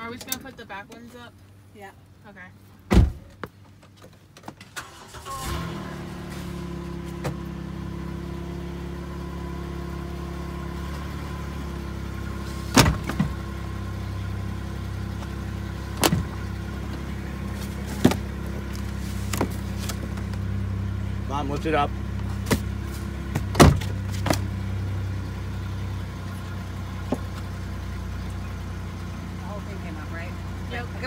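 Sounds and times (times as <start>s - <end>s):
car engine starting and idling: 2.8s - 31.0s
sharp knocks in car: 2.9s - 3.5s, 23.3s - 24.4s.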